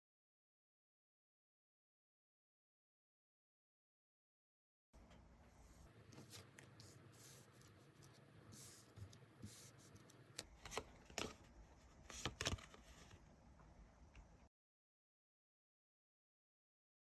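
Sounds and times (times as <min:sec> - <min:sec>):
cards rustling: 0:06.1 - 0:13.1.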